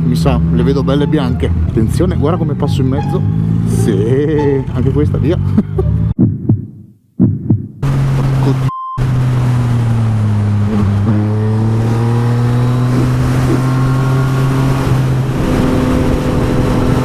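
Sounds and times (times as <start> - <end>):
rushing wind: 7.8 - 17.0.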